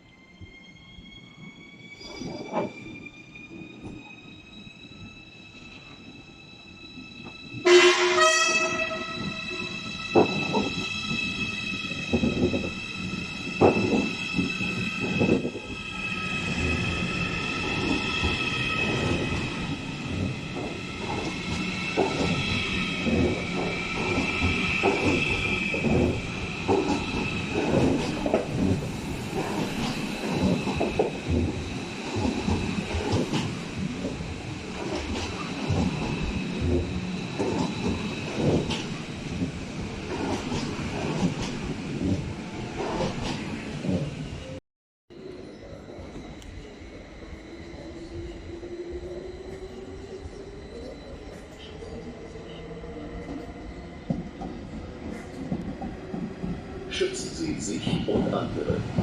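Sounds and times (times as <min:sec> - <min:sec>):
train wheels squealing: 0:00.0 - 0:07.7, 0:08.8 - 0:32.9, 0:45.2 - 0:56.1.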